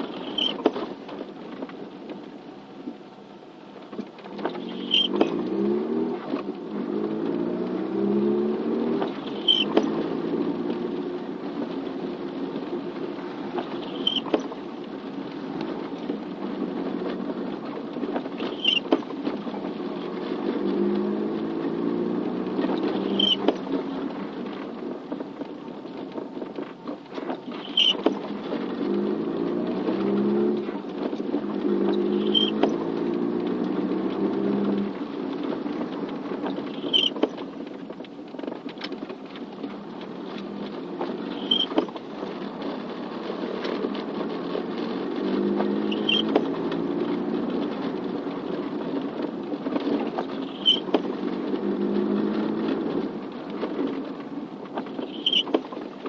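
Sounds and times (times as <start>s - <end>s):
light rain: 0.0s - 56.0s
vehicle engine hum: 0.0s - 56.0s
high squeak-click: 0.1s - 0.7s, 4.5s - 5.4s, 9.1s - 9.9s, 13.8s - 14.4s, 18.4s - 19.0s, 23.0s - 23.6s, 27.5s - 28.1s, 32.0s - 32.7s, 36.7s - 37.3s, 41.3s - 41.9s, 45.9s - 46.4s, 50.4s - 51.0s, 55.0s - 55.6s.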